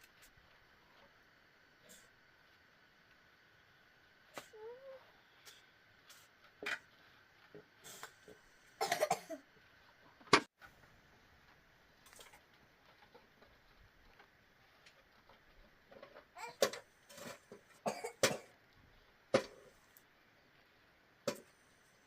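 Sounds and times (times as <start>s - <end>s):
person coughing: 8.8s - 9.4s, 17.9s - 18.5s.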